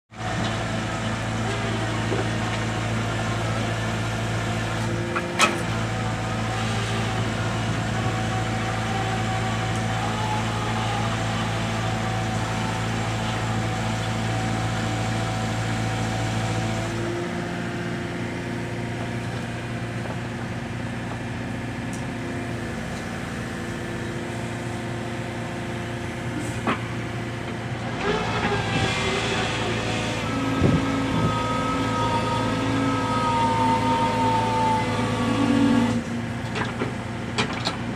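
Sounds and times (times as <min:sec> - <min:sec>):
excavator engine running: 0:00.1 - 0:37.9.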